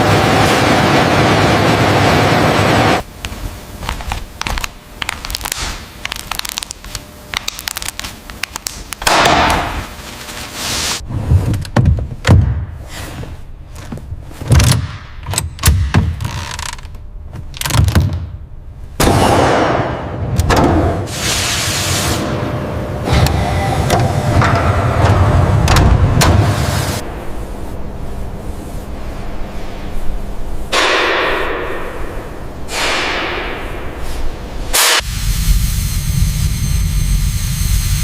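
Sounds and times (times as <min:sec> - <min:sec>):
loud steady rushing noise: 0:00.0 - 0:04.0.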